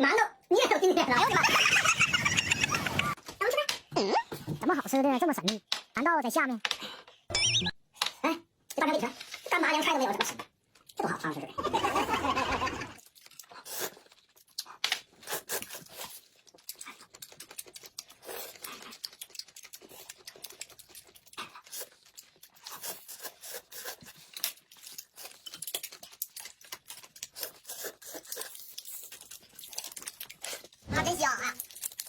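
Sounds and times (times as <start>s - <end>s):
crunching and chewing food: 12.4s - 32.0s.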